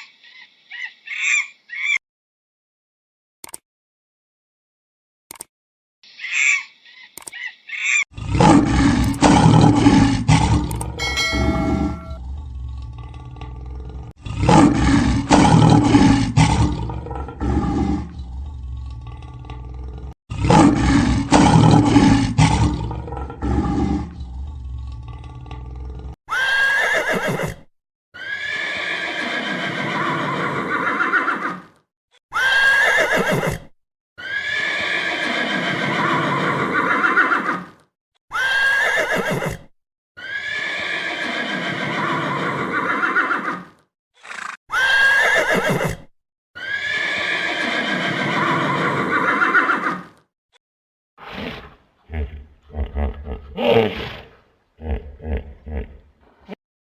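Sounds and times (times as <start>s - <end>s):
animal roaring: 8.1s - 26.2s, 51.2s - 56.0s
horse whinnying: 26.3s - 31.7s, 32.3s - 37.7s, 38.3s - 50.2s.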